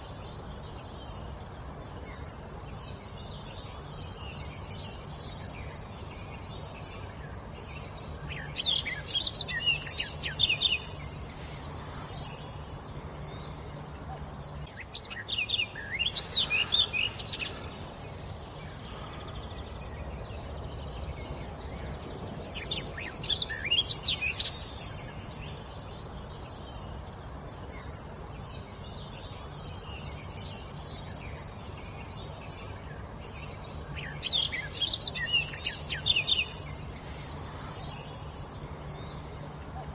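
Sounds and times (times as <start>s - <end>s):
background hiss: 0.0s - 39.9s
songbird warbling: 5.6s - 20.6s, 21.2s - 25.1s, 33.4s - 39.9s.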